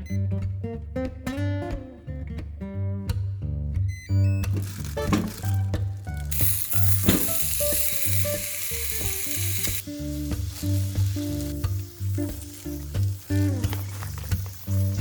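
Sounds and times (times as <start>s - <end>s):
background music with bass line: 0.0s - 15.0s
food sizzling in a pan: 4.6s - 15.0s.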